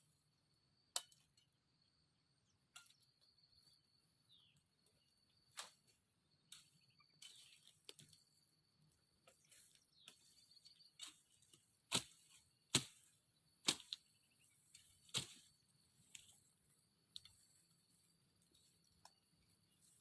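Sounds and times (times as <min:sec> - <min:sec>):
blade chopping wood: 0:11.9 - 0:12.1, 0:12.7 - 0:13.0.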